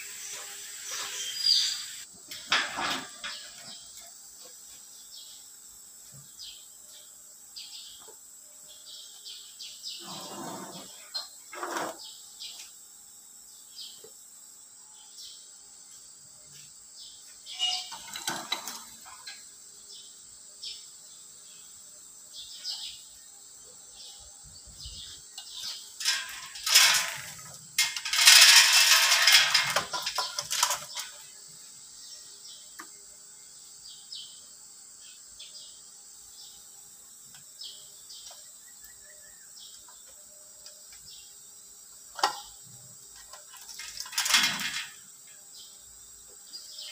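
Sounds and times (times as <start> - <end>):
loud metallic rattle: 26.0 - 31.2, 43.6 - 45.1.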